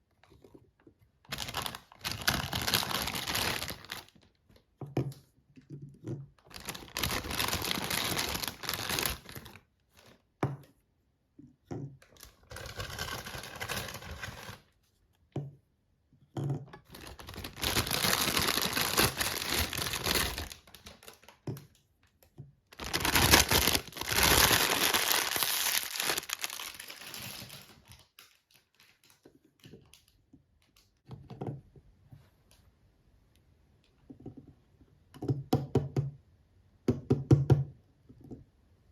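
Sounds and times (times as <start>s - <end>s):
packaging crinkling and tearing: 1.3s - 4.2s, 6.5s - 9.6s, 12.4s - 14.6s, 16.9s - 21.4s, 22.7s - 29.3s
small clicks and taps: 27.9s - 31.6s.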